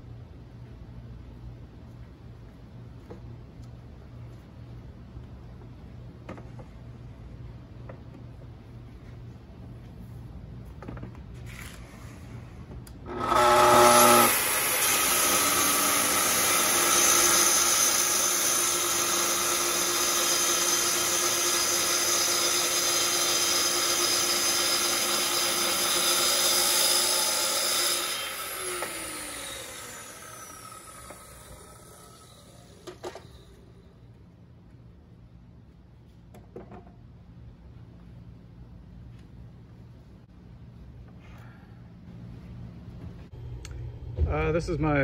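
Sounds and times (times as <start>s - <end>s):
saw cutting wood: 13.1s - 33.5s
click: 43.6s - 43.8s.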